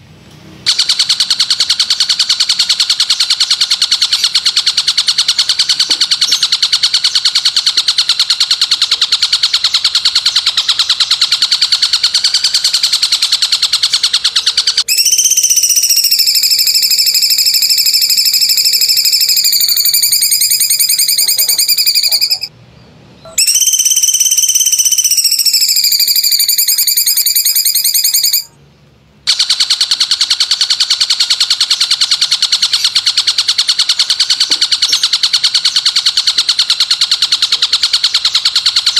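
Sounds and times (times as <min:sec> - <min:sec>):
bird buzzy trill: 0:00.6 - 0:22.6, 0:23.2 - 0:28.6, 0:29.2 - 0:38.9
long whistled bird notes: 0:00.8 - 0:22.5, 0:23.3 - 0:28.5.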